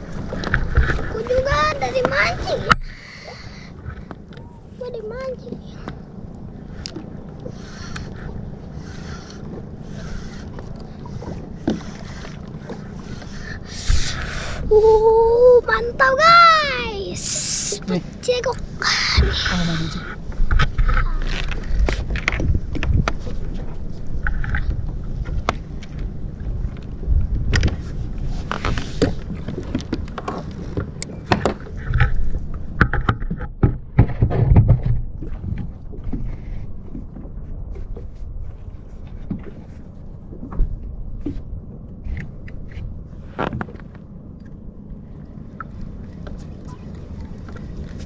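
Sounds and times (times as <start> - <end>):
steady low rumble: 0.0 - 48.0
knocks and thuds on kayak: 32.8 - 36.3.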